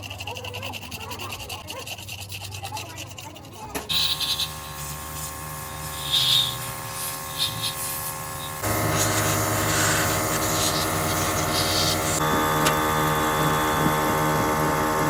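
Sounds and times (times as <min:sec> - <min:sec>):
machinery humming: 0:03.8 - 0:15.0
short scraping rubs: 0:05.9 - 0:12.2.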